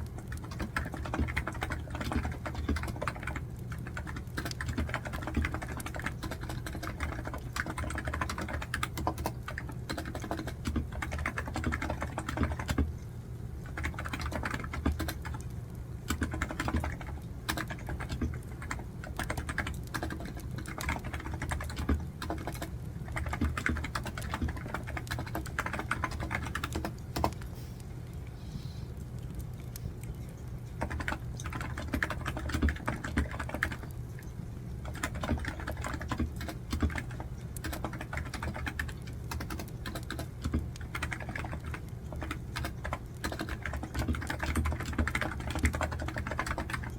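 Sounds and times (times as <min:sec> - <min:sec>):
rapid typing on keyboard: 0:00.0 - 0:13.0, 0:13.6 - 0:27.5, 0:30.0 - 0:46.9
wood fire crackling: 0:26.5 - 0:31.4.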